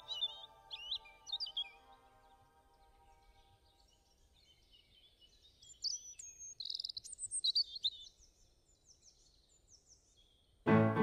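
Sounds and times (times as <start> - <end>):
songbird chirps and trills: 0.0 - 11.0.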